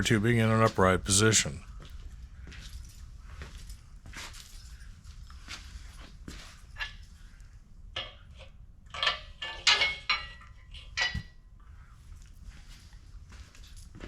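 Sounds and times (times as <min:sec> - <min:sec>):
steel parts clinking and clanking: 0:06.3 - 0:07.2, 0:08.0 - 0:11.6
sharp metal knocks: 0:08.0 - 0:11.4.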